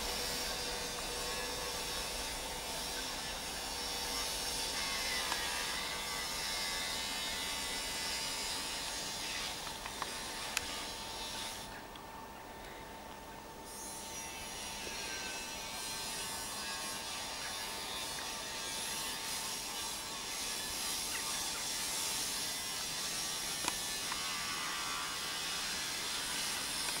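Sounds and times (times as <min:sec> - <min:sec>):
diesel train engine and wheels rumbling: 0:00.0 - 0:13.8.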